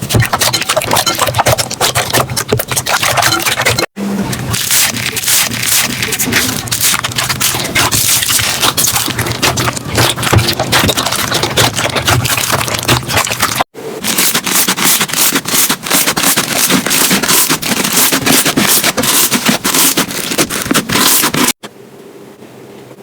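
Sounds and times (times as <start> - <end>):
slime crackling and popping: 4.4 - 21.6.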